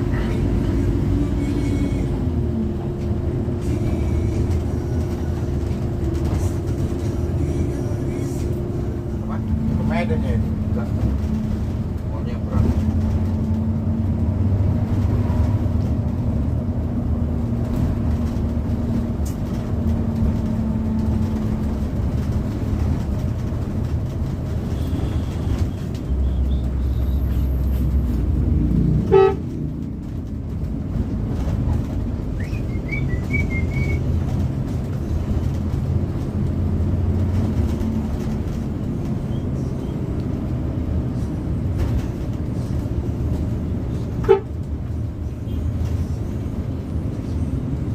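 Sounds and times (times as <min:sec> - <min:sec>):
bus engine droning: 0:00.0 - 0:47.9
road noise: 0:00.0 - 0:47.9
bus horn toot: 0:24.6 - 0:27.7, 0:28.9 - 0:29.7, 0:44.1 - 0:44.7.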